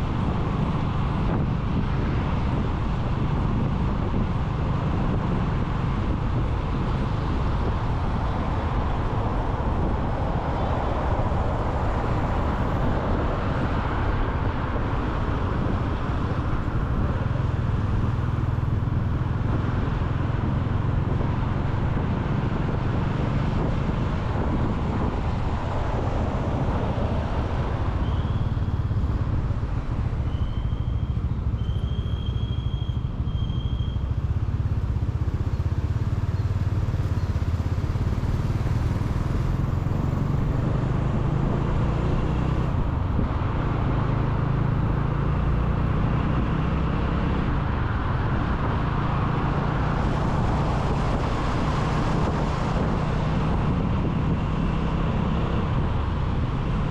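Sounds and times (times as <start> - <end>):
wind buffeting microphone: 0.0 - 30.3, 46.4 - 56.9
motorcycle engine and road rumble: 0.0 - 56.9
traffic: 0.0 - 56.9.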